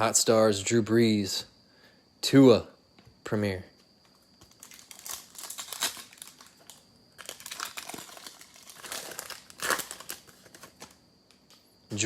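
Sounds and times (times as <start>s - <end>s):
trading card pack crinkling: 4.0s - 11.6s.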